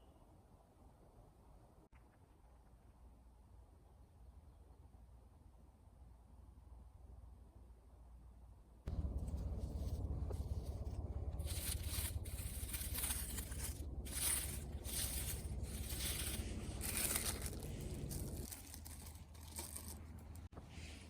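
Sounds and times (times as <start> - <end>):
low steady hum: 0.0 - 21.0
rustling and tearing: 8.9 - 20.5.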